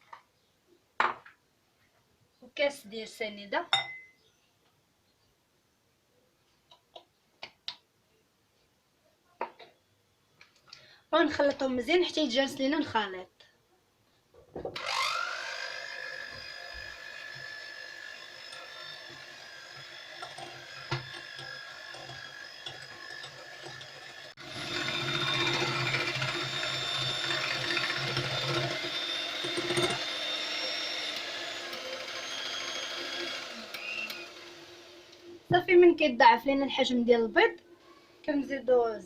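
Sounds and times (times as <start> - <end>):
electric mixer motor whining: 14.8 - 35.4.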